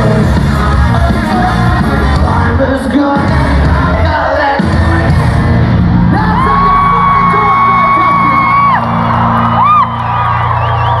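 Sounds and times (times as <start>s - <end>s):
live band playing loud: 0.0s - 10.6s
person whooping: 6.2s - 11.0s.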